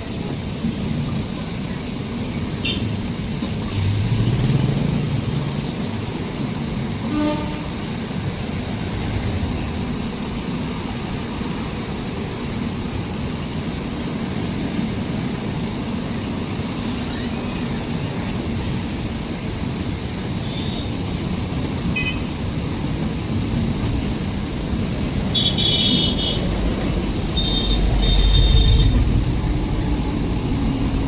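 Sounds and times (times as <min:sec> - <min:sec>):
train rumbling: 0:00.0 - 0:31.0
short train toot: 0:07.0 - 0:07.9, 0:27.4 - 0:29.0.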